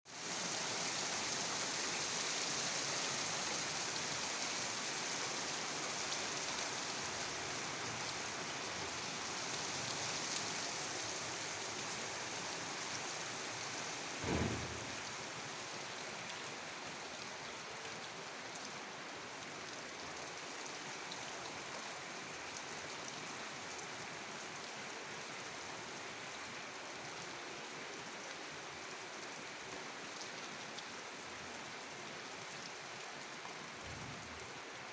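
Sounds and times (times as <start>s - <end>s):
rain falling steadily: 0.1s - 34.9s
brief low thump: 14.2s - 15.0s.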